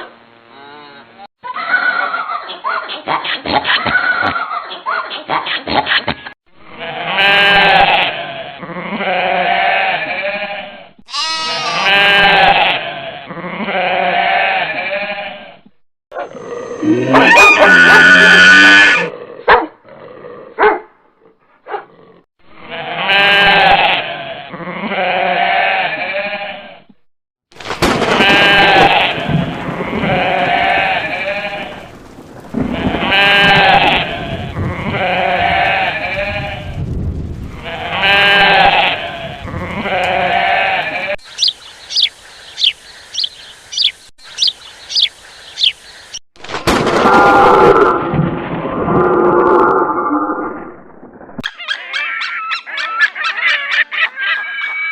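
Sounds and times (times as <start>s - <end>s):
farm animal bleating: 0.4s - 1.3s, 6.6s - 15.6s, 16.8s - 19.1s, 22.6s - 26.9s, 28.2s - 31.8s, 32.8s - 36.7s, 37.6s - 42.0s
bird chirping: 41.2s - 46.2s.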